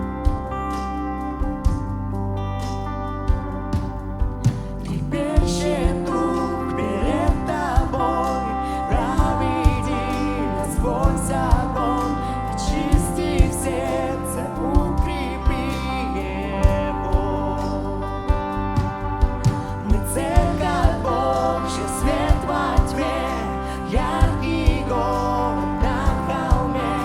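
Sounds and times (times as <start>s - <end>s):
bending lead melody: 0.0s - 27.0s
keyboard chords: 0.0s - 27.0s
drum beat: 18.3s - 21.3s, 24.0s - 25.1s, 25.8s - 26.8s.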